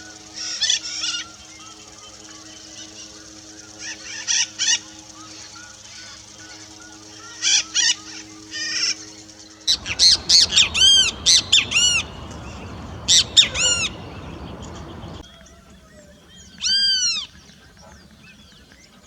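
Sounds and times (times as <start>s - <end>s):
background hiss: 9.7s - 15.2s
harsh bird calls: 9.7s - 15.2s
sharp arching bird notes: 9.7s - 15.2s.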